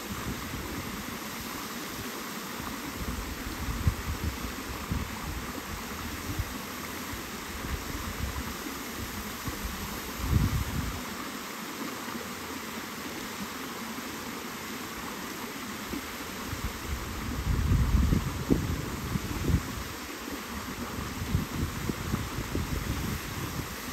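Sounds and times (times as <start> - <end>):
flowing water rushing: 0.0 - 23.9
wind buffeting microphone: 3.0 - 6.5, 7.6 - 11.0, 16.5 - 23.9.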